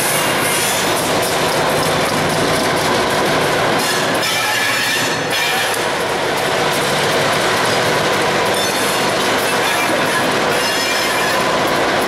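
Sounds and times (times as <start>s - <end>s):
train wheels squealing: 0.0s - 1.4s, 3.8s - 5.9s, 8.4s - 11.8s
freight train rolling on rails: 0.0s - 12.0s.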